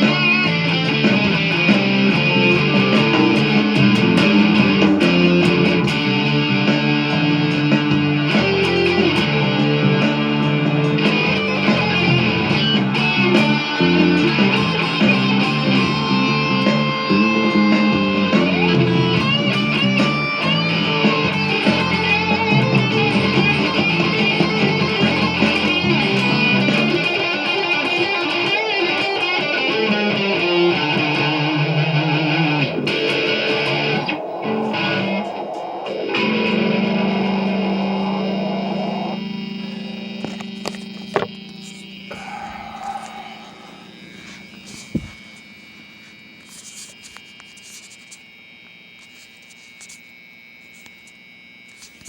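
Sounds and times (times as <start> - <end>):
backing track: 0.0 - 28.4
electric guitar playing: 0.0 - 45.1
steady held guitar tone: 0.0 - 47.8.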